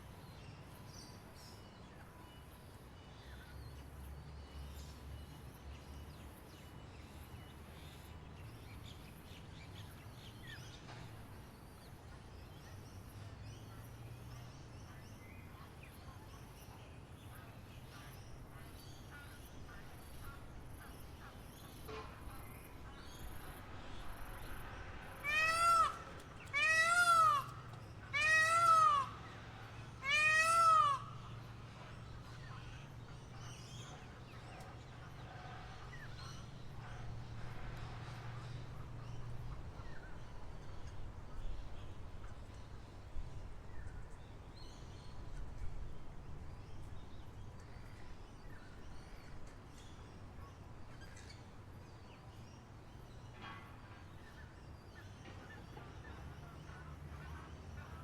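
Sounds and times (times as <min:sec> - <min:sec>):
faint outdoor background: 0:00.0 - 0:58.0
mewing animal calls: 0:25.2 - 0:29.2, 0:30.0 - 0:31.1.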